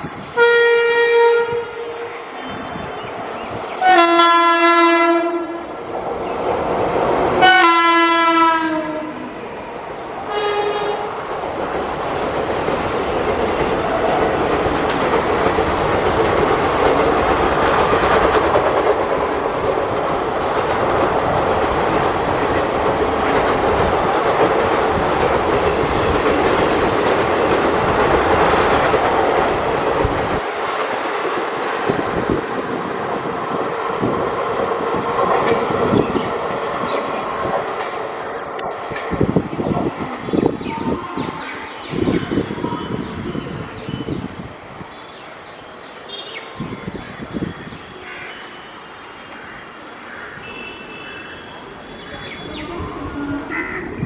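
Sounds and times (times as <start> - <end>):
locomotive horn blasts: 0.4 - 2.6, 3.8 - 5.7, 7.4 - 9.3, 10.3 - 11.1
train wheels clattering on rails: 10.2 - 40.7.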